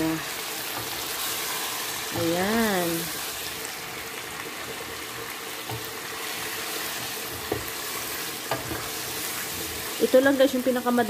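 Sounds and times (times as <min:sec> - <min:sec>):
chicken sizzling in oil: 0:00.0 - 0:11.0
wooden spoon knocking on pot: 0:07.4 - 0:07.8.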